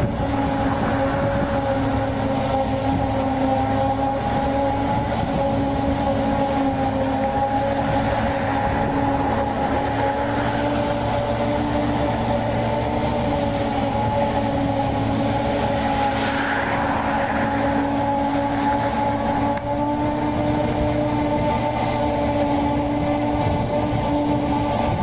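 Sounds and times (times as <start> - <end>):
tracked dumper engine drone: 0.0 - 25.0.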